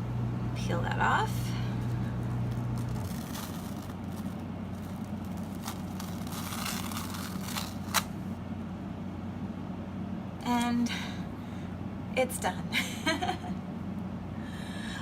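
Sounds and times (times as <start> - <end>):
low hum: 0.0 - 12.1
adhesive film crinkling and crackling: 1.7 - 8.4.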